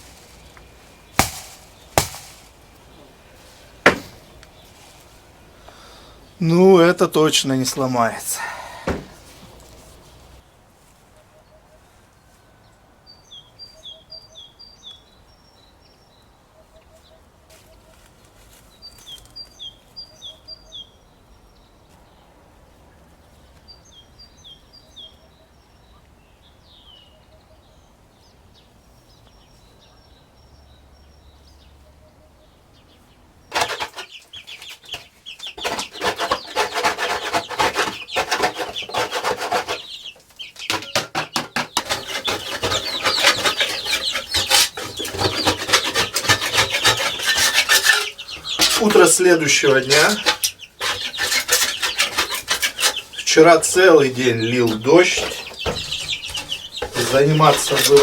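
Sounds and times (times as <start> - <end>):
faint lower bird calls: 11.2 - 22.2
small bird singing: 12.6 - 18.0, 18.6 - 22.2, 23.2 - 58.0
chicken clucking: 33.5 - 58.0.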